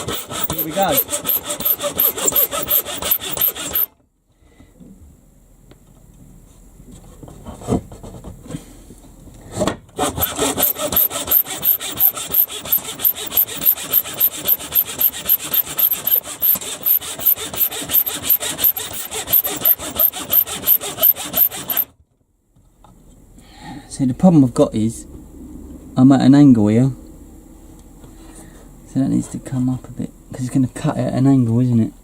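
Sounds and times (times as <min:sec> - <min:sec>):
hand saw cutting wood: 0:00.0 - 0:04.0, 0:10.0 - 0:21.9.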